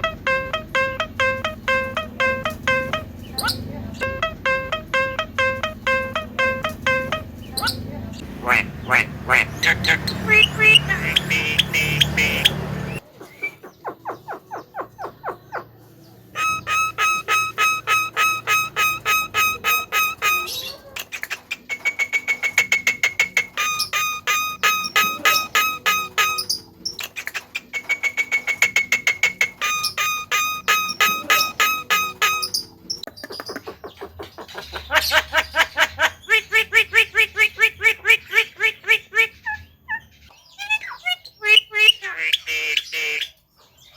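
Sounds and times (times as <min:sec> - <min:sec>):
low hum: 0:00.0 - 0:13.0
pulsing musical tone: 0:00.0 - 0:13.0, 0:16.4 - 0:20.5, 0:23.6 - 0:26.8, 0:29.7 - 0:33.0
bird harsh chattering calls: 0:00.0 - 0:43.9.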